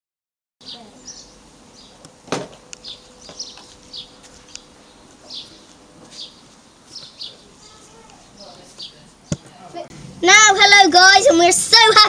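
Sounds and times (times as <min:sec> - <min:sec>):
small bird chirping: 0:00.6 - 0:02.0, 0:02.8 - 0:09.4.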